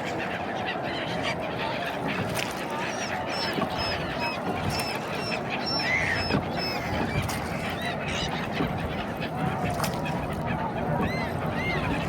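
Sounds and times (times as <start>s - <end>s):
background hubbub: 0.0s - 12.0s
flock of birds calling: 2.7s - 9.0s.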